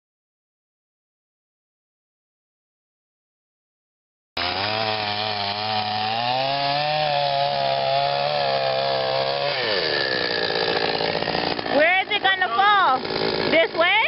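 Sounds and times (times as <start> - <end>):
chainsaw cutting branches: 4.4 - 14.0.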